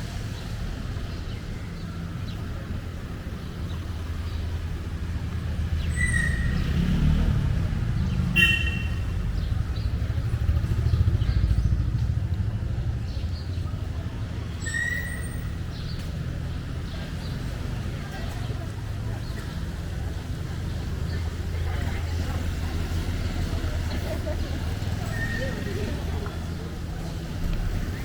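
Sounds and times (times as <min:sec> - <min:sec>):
vehicle engines rumbling: 0:00.0 - 0:28.0.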